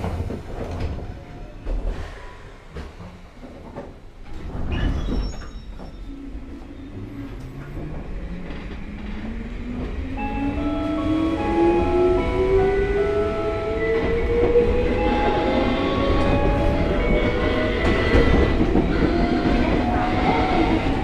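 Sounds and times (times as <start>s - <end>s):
wheels rumbling on rails: 0.0s - 21.0s
knock and squeal: 4.5s - 7.1s.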